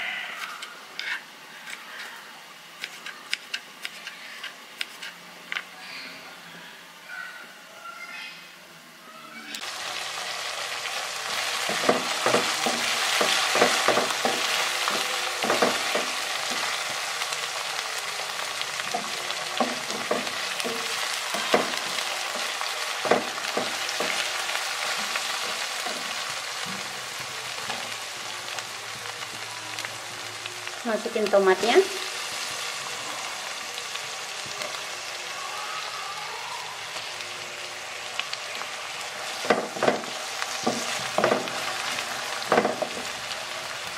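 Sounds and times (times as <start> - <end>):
food sizzling in hot oil: 9.6 - 43.9.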